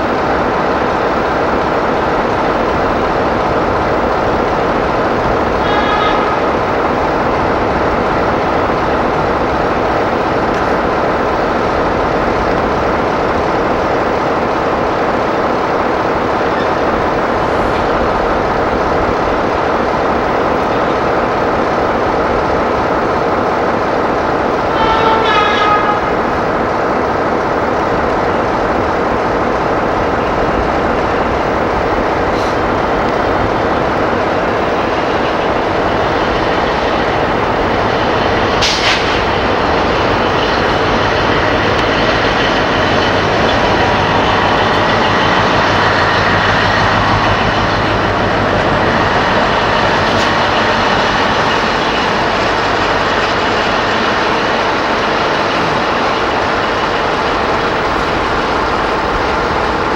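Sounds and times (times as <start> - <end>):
diesel train engine and wheels: 0.0 - 59.9.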